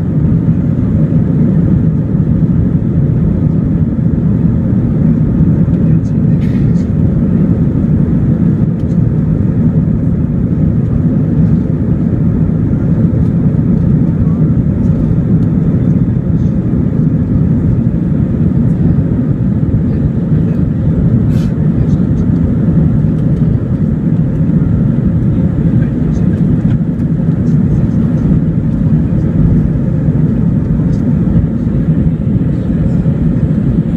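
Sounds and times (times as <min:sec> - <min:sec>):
airflow over fuselage: 0:00.0 - 0:33.9
airplane cabin engine rumble: 0:00.0 - 0:33.9
rushing air: 0:21.0 - 0:21.8.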